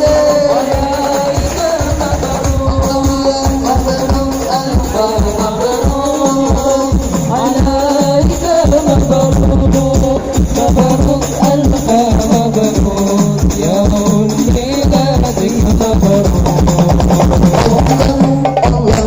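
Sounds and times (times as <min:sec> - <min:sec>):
frame drums beating: 0:00.0 - 0:19.0
jingling hand percussion: 0:00.0 - 0:19.0
sung melody: 0:00.0 - 0:19.0.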